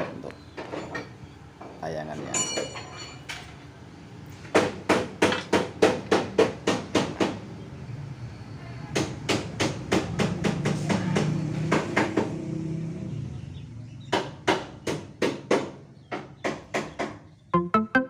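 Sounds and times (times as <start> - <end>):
metallic knocks of tools on engine parts: 4.5 - 7.4.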